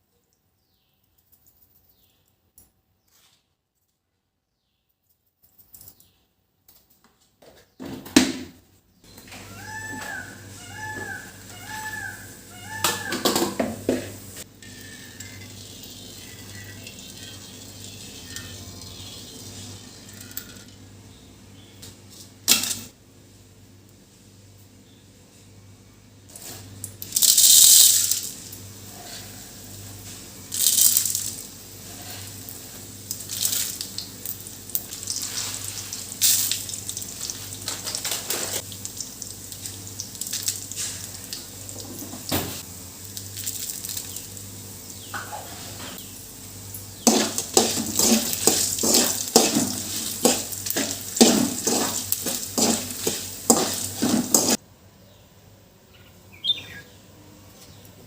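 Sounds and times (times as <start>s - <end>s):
dishes and utensils clinking: 47.0s - 54.6s.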